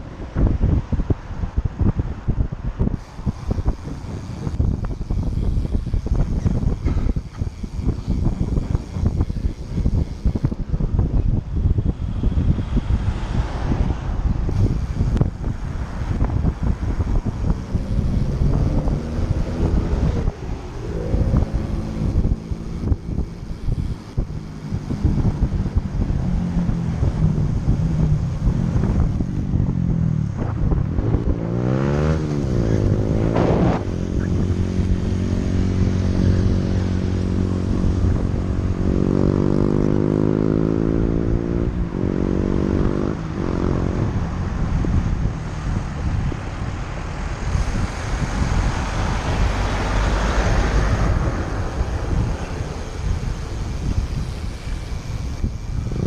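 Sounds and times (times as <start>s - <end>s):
vehicle engines running: 0.0s - 56.0s
wind noise on microphone: 0.0s - 56.0s
vehicle passing: 11.9s - 56.0s.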